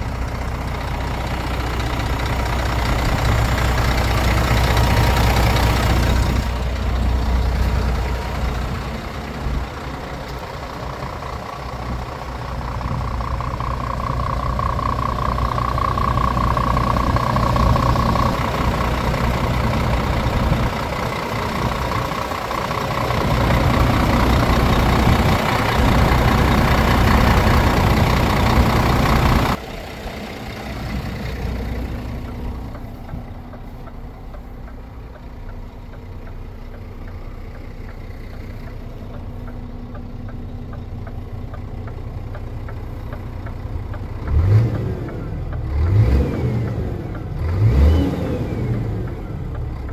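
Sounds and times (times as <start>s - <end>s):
truck diesel engine running: 0.0s - 49.9s.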